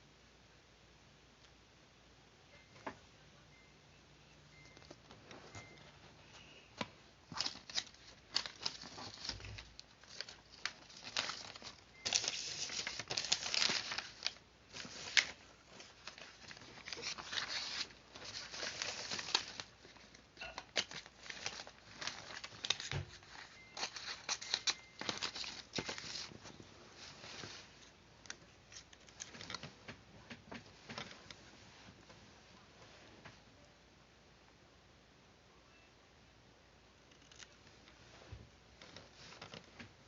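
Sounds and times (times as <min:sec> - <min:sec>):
paper rustling: 0:06.4 - 0:29.8, 0:38.8 - 0:39.9.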